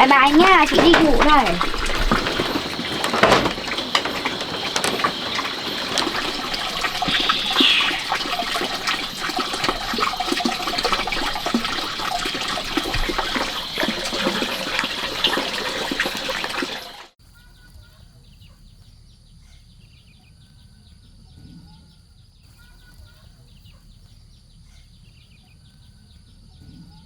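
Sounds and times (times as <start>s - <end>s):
water rushing and splashing: 0.0s - 17.2s.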